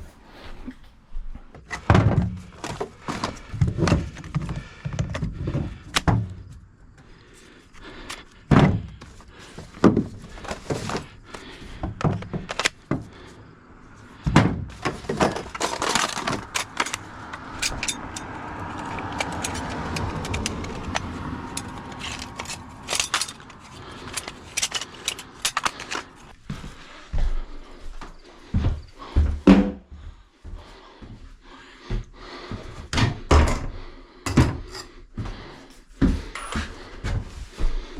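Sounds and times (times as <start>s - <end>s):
knocks and clattering: 14.2s - 26.2s
rustling or scraping noise: 14.7s - 26.4s.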